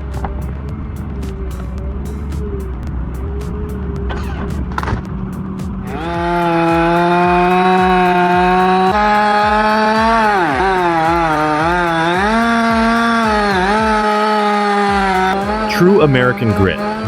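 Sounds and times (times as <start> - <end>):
chainsaw cutting wood: 5.9 - 17.0.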